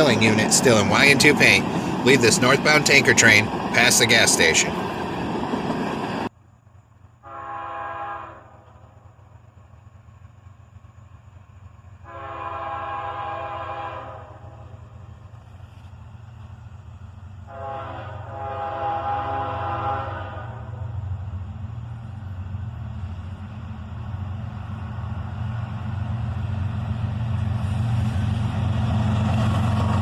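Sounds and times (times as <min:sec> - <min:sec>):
locomotive rumble: 0:00.0 - 0:30.0
locomotive air horn blasts: 0:07.2 - 0:08.8, 0:12.0 - 0:14.6, 0:17.5 - 0:20.8.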